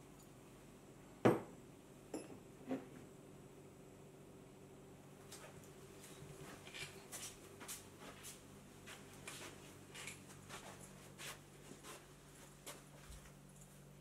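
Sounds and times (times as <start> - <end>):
low steady hum: 0.0 - 14.0
soft footsteps indoors: 5.1 - 14.0.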